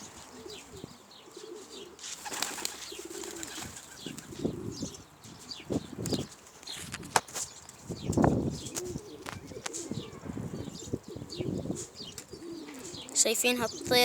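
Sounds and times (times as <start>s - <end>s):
pigeons cooing: 0.0s - 14.0s
wings fluttering: 1.6s - 4.8s.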